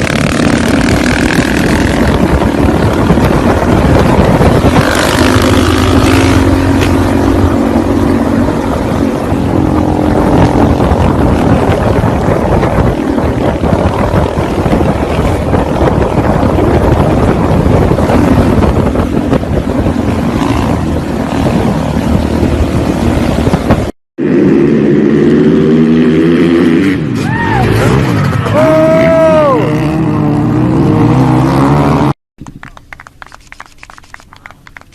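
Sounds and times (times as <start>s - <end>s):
motorcycle engine running: 0.0s - 23.9s
wind and road noise: 0.0s - 34.9s.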